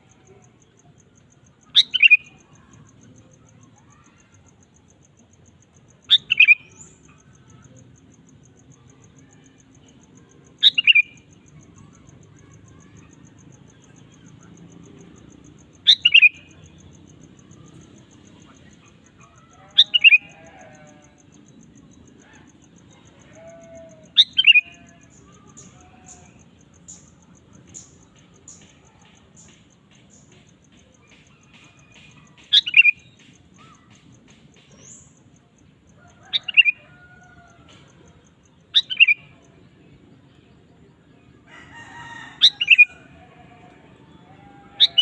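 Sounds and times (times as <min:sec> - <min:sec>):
bulbul calls: 0:01.7 - 0:02.5, 0:12.4 - 0:16.6, 0:23.0 - 0:25.0, 0:38.7 - 0:39.4, 0:44.7 - 0:45.0.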